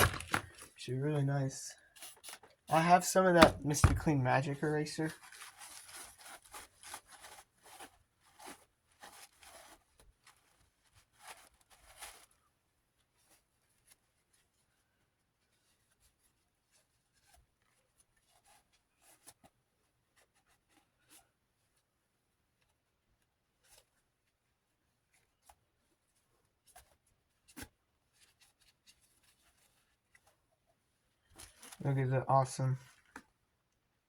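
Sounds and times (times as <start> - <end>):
sponge scrubbing plastic: 0.0 - 0.6.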